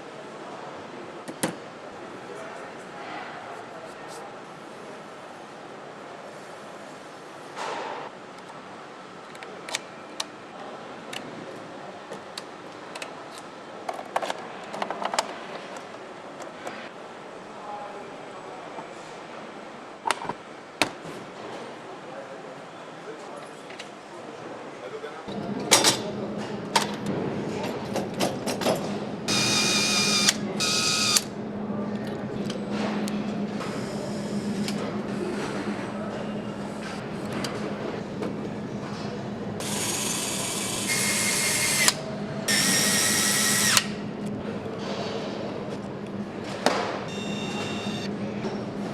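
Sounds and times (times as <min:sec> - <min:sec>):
factory hum: 0:00.0 - 0:48.9
steady machine hum: 0:29.0 - 0:44.8, 0:45.4 - 0:48.9.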